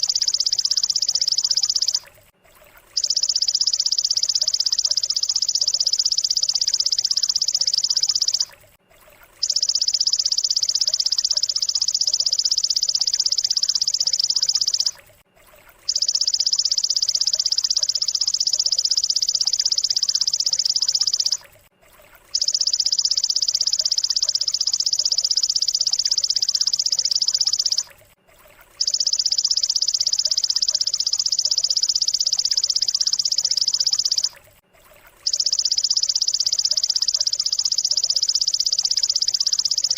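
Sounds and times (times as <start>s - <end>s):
high buzzing bird trill: 0.0s - 2.0s, 3.0s - 8.5s, 9.4s - 15.0s, 15.9s - 21.4s, 22.4s - 27.9s, 28.8s - 34.4s, 35.3s - 39.9s.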